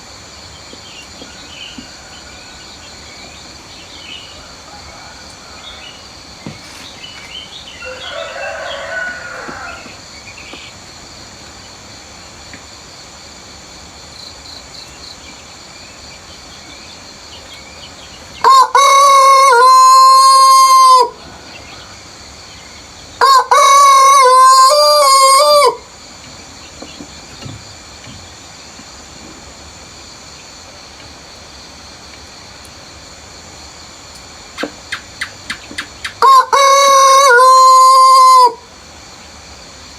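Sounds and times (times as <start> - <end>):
rooster crowing: 4.2 - 6.2, 7.6 - 10.1, 18.4 - 22.1, 23.2 - 25.9, 36.2 - 38.7.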